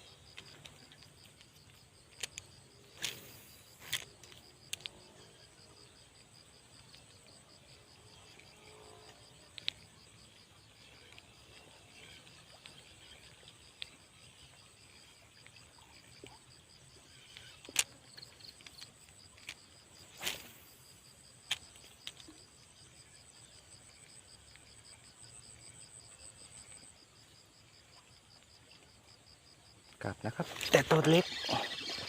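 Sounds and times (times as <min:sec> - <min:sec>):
insects chirping in a pulsing trill: 0:00.0 - 0:32.0.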